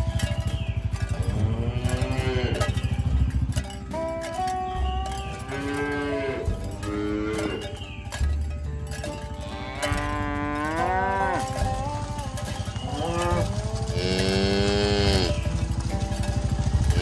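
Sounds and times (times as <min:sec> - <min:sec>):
cattle mooing: 0:01.1 - 0:03.1, 0:04.3 - 0:07.8, 0:09.1 - 0:15.7.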